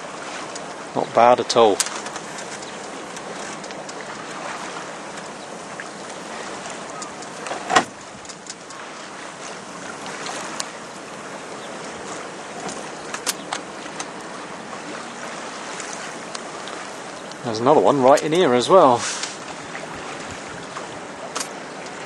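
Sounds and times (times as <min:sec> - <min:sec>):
water rushing along hull: 0:00.0 - 0:22.0
light clicks: 0:01.8 - 0:04.3, 0:06.0 - 0:07.6.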